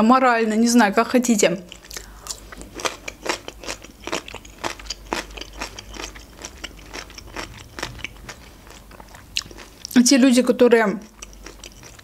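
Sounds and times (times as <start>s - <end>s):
chewing crisp food: 1.6s - 10.0s, 10.9s - 12.0s.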